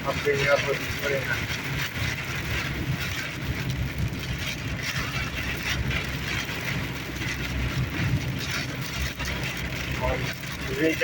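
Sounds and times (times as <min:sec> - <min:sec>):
engine and tyre rumble: 0:00.0 - 0:11.0.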